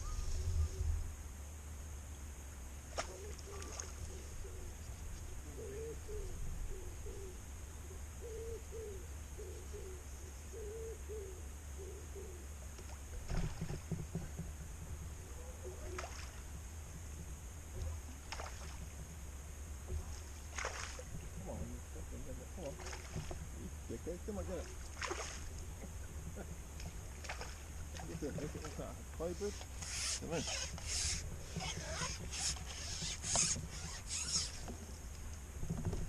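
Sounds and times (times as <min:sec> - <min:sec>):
bird calling low notes: 0:00.0 - 0:01.2, 0:03.0 - 0:13.3, 0:15.1 - 0:16.6, 0:27.8 - 0:34.7
low wind rumble: 0:00.0 - 0:02.9, 0:04.0 - 0:36.0.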